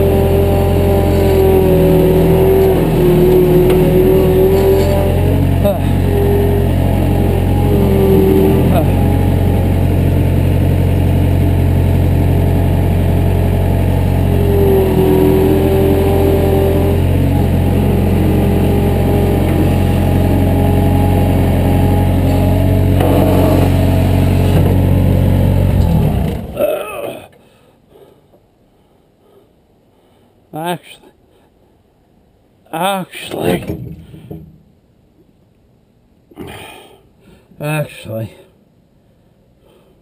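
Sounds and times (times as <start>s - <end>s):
wavering high whine: 0.0s - 26.6s
loader engine running: 0.0s - 26.8s.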